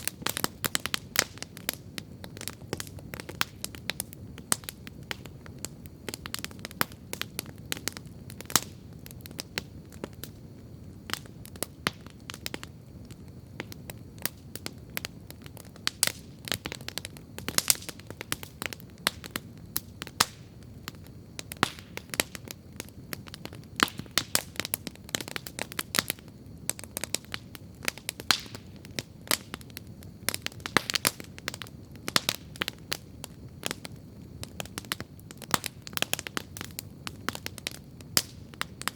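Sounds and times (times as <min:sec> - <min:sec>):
campfire crackling and popping: 0:00.0 - 0:38.9
low rumble of flames: 0:00.0 - 0:38.9.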